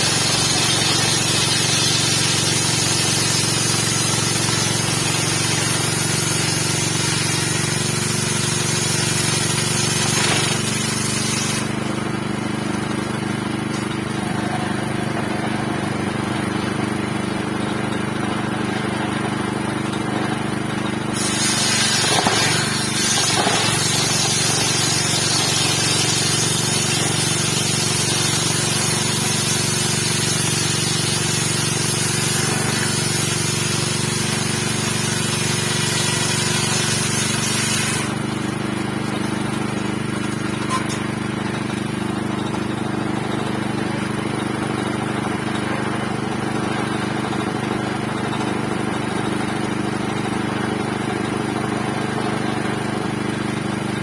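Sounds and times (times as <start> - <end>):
engine driving circular saw: 0.0 - 54.0.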